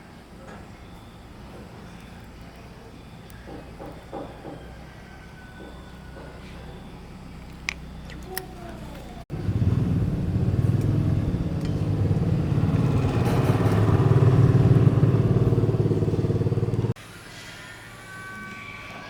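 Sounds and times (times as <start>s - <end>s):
engine running with pulsing note: 9.3s - 17.0s.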